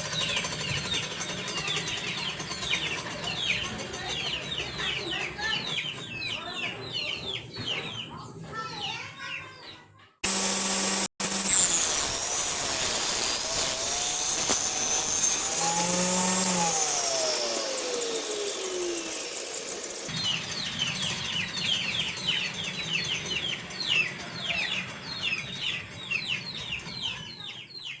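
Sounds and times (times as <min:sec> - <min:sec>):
small birds chirping: 0:00.0 - 0:10.4, 0:12.5 - 0:28.0
table saw cutting wood: 0:10.2 - 0:23.1
saw motor winding down: 0:10.2 - 0:23.5.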